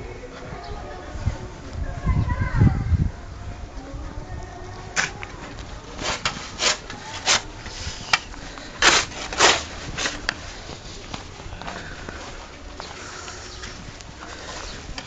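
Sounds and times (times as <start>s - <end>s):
footsteps crunching in snow: 5.4s - 15.0s.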